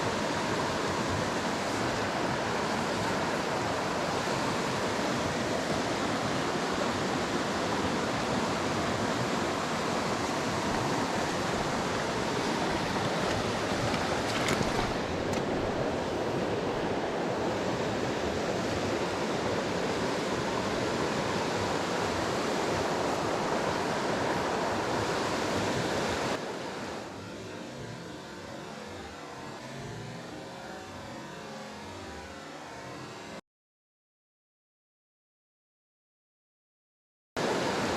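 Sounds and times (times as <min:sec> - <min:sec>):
stream water rushing: 0:00.0 - 0:29.6, 0:37.4 - 0:37.9.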